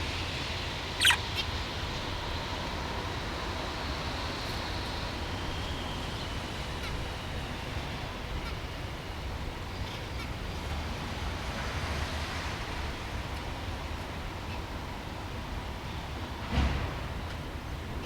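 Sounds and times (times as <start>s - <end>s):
budgerigar chirping: 1.0s - 1.6s.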